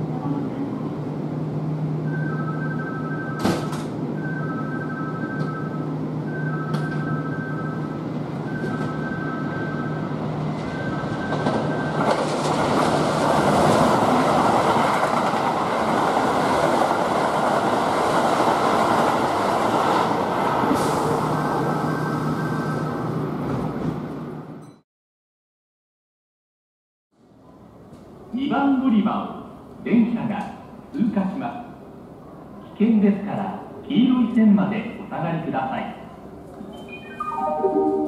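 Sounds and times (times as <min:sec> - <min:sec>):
two-note electronic warning tone: 0:04.2 - 0:12.0, 0:36.8 - 0:38.0
train wheels rumbling on rails: 0:08.1 - 0:24.6.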